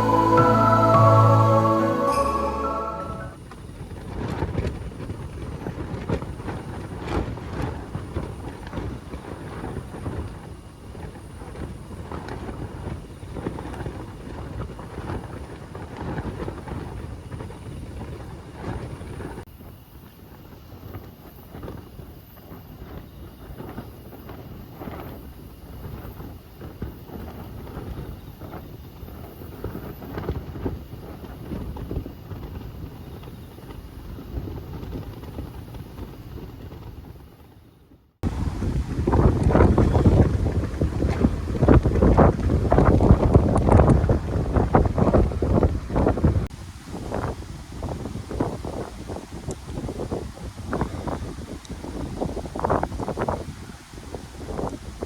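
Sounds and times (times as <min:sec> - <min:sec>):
wind gusting over microphone: 0:38.2 - 0:55.0.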